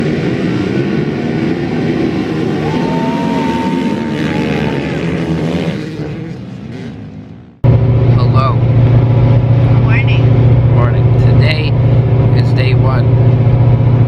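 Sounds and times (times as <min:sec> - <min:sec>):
dirt bike engines running: 0:00.0 - 0:14.0.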